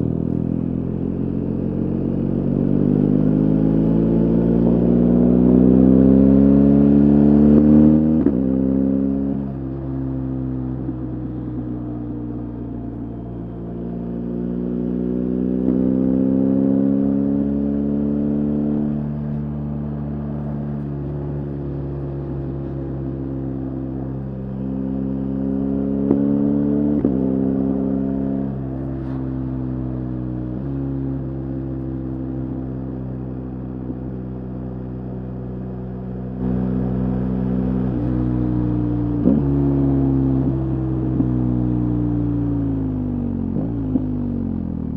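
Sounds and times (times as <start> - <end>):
motorcycle engine revving: 14.2 - 44.9.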